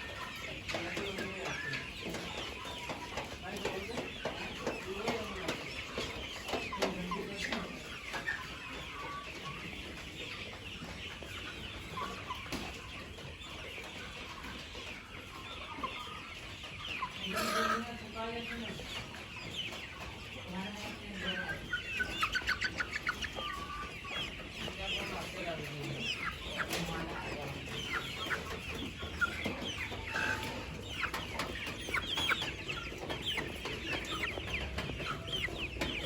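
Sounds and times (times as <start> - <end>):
chickens chirping and clucking: 0.0 - 36.0
drawn-out chicken call: 17.2 - 18.0, 22.2 - 36.0.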